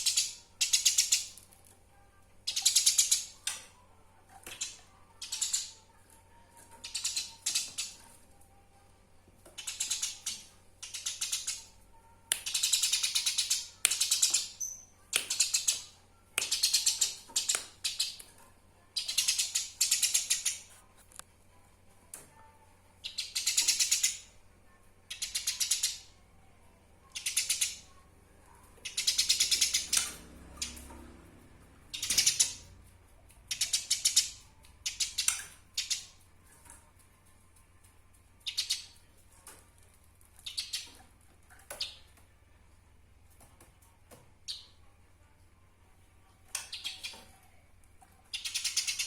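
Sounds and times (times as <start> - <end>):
sparrow rattling chatter calls: 6.8 - 8.0, 9.6 - 11.7, 23.0 - 24.3, 27.1 - 27.8, 28.8 - 30.8, 31.9 - 32.7, 33.5 - 36.2, 38.4 - 39.0, 48.3 - 49.0.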